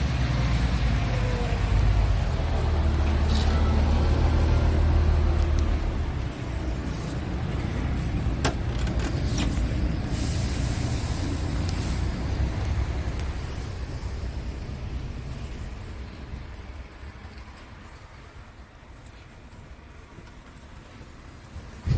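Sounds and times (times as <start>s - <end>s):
diesel truck engine humming: 0.0s - 17.2s
compressed air hiss: 10.0s - 12.4s.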